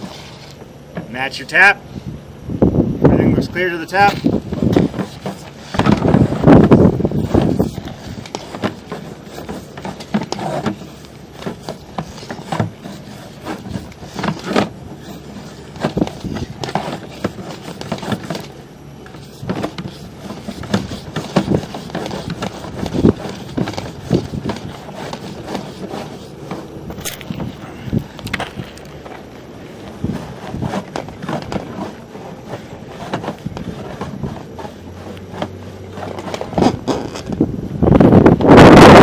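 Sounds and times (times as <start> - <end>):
push cable scraping in drain: 0.0 - 0.6, 3.5 - 39.0.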